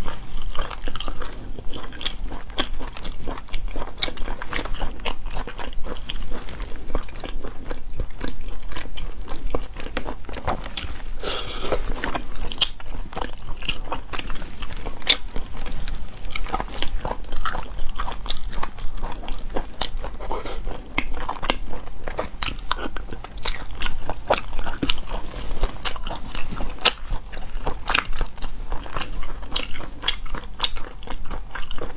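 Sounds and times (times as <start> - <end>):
wet chewing of snails: 0.0 - 31.9.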